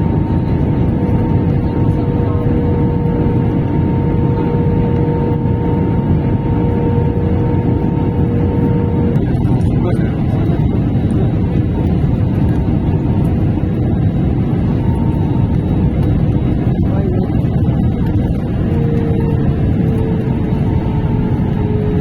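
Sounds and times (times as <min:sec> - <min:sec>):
faint steady whine: 0:00.0 - 0:22.0
whine falling in pitch: 0:14.0 - 0:22.0.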